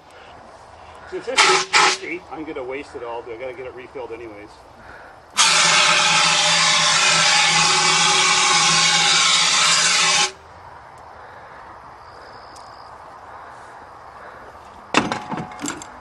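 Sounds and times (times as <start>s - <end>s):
fire extinguisher hissing: 1.3s - 2.2s, 5.4s - 10.4s.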